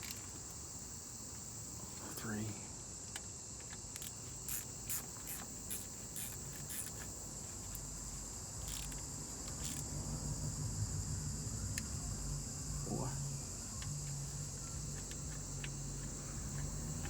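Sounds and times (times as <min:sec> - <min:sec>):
crickets chirring: 0:00.0 - 0:17.0
hand ratchet clicking: 0:03.1 - 0:07.9, 0:08.6 - 0:09.9.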